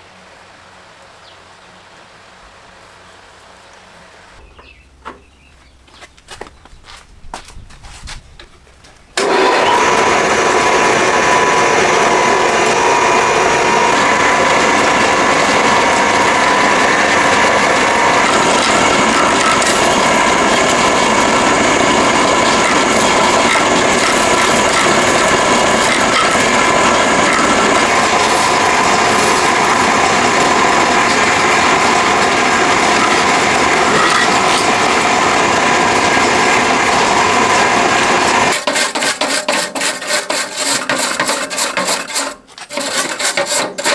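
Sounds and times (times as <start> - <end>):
power tool whining and grinding: 9.2 - 43.9.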